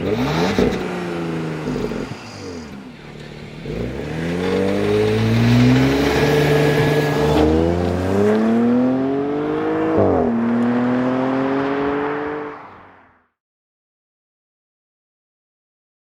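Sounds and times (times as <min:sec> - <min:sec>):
car engine accelerating hard: 0:00.0 - 0:13.2
gear upshifts: 0:01.6 - 0:12.7.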